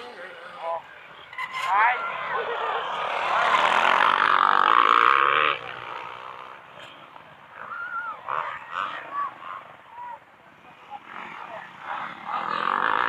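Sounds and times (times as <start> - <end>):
motocross engine running: 0.0 - 7.1, 10.8 - 13.0.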